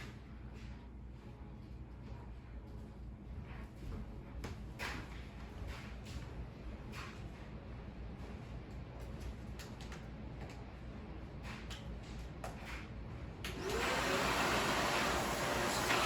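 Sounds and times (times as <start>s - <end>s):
vacuum cleaner running: 13.5s - 16.0s.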